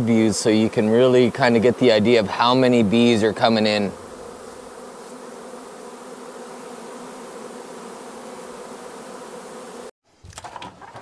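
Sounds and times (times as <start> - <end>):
swarm of bees buzzing: 0.0 - 9.9.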